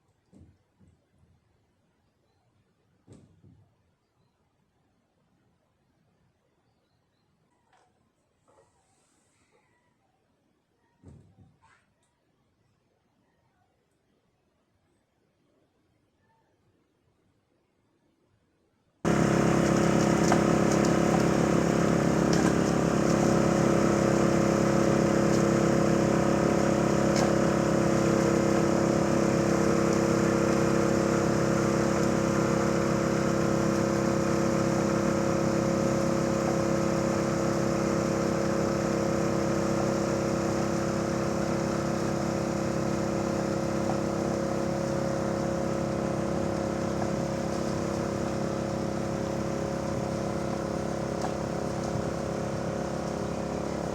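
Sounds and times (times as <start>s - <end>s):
snowblower engine running: 19.1s - 53.9s.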